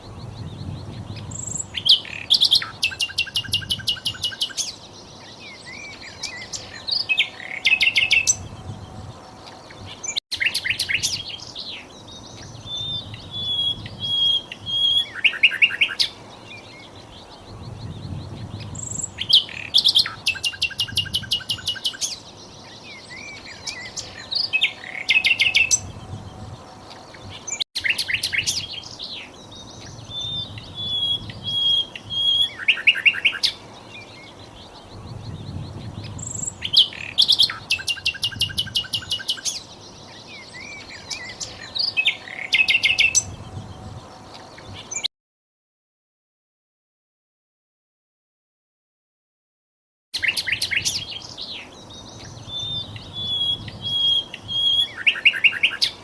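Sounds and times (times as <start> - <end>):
high bird chirps: 0.0 - 45.1, 50.2 - 56.0
bird whistling and trilling: 0.4 - 4.8, 5.4 - 9.0, 10.0 - 11.3, 12.4 - 16.2, 17.8 - 22.2, 29.8 - 33.6, 35.4 - 39.6, 40.3 - 43.6, 50.2 - 51.2, 52.1 - 56.0.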